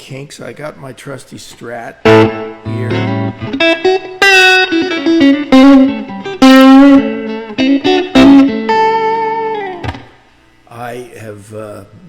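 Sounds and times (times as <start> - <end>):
electric guitar playing blues: 2.0 - 10.2.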